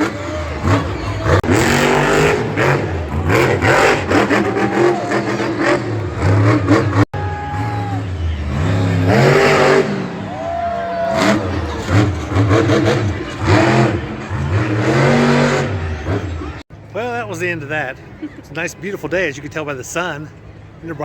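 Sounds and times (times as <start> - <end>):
truck engines revving: 0.0 - 21.0.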